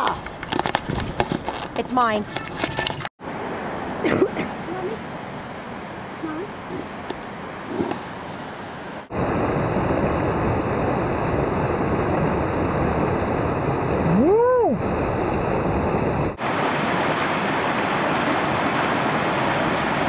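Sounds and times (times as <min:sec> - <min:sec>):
short pitched whoop: 0:14.1 - 0:14.8
whitewater river rushing: 0:16.3 - 0:20.0.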